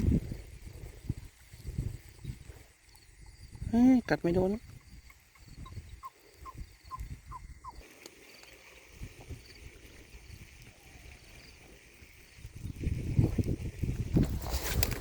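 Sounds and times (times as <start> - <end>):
high trilling calls: 4.8 - 7.8.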